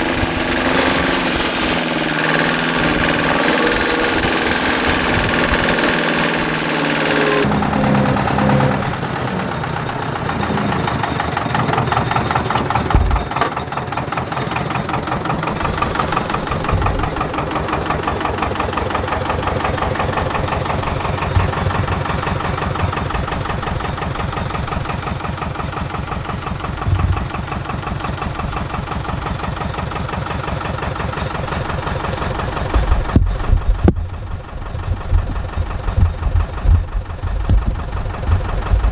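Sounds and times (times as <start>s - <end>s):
harsh hissy engine: 0.0s - 12.0s
engine running at low revs: 0.0s - 13.4s, 14.2s - 38.9s.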